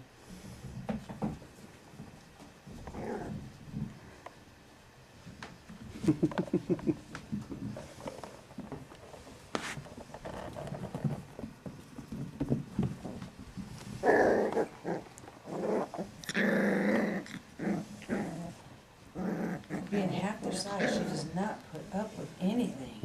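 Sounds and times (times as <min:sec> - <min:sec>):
puppies growling: 0:02.7 - 0:04.4, 0:10.0 - 0:22.2
puppies scuffling: 0:06.8 - 0:16.2.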